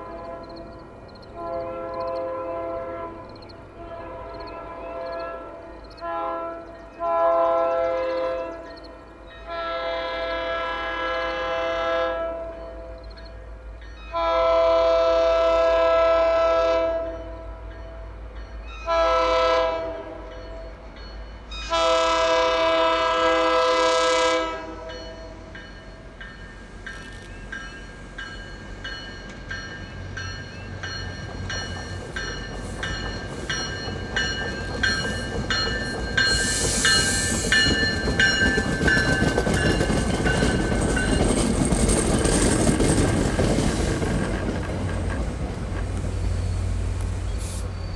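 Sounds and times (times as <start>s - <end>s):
locomotive air horn blasts: 0.0s - 8.8s, 9.4s - 13.0s, 14.1s - 17.7s, 18.9s - 20.2s, 21.6s - 25.5s
train wheels clicking over rail joints: 25.6s - 47.9s.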